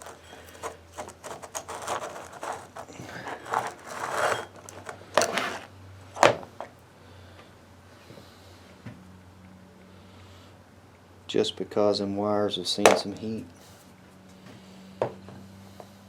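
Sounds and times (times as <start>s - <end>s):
scraping and rustling of parts: 0.0s - 6.8s.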